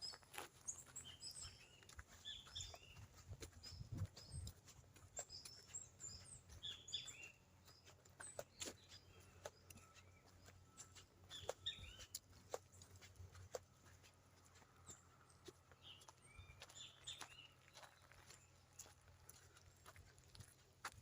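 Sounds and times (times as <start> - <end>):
birds chirping and calling: 0.0 - 20.6.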